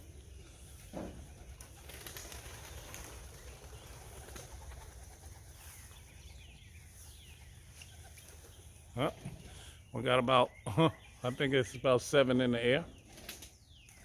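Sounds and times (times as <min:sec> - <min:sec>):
high falling bird chirps: 0:00.0 - 0:14.0
pigeons cooing faintly: 0:00.0 - 0:14.0
wing flaps: 0:01.1 - 0:05.6.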